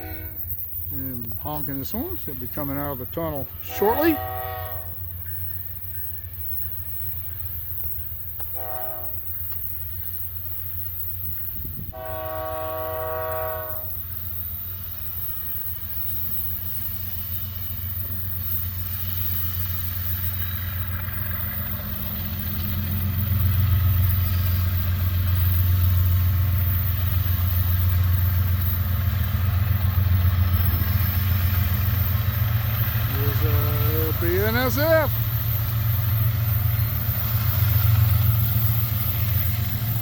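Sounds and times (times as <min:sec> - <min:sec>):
locomotive air horn: 0:00.0 - 0:00.8, 0:03.6 - 0:05.2, 0:08.5 - 0:09.3, 0:11.9 - 0:14.0
deep rumble of train locomotives: 0:00.0 - 0:40.0.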